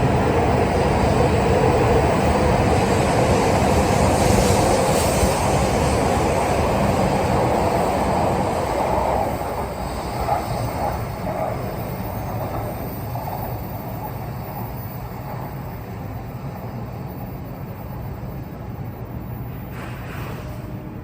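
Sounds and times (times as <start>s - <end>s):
train running rumble and hiss: 0.0s - 21.0s.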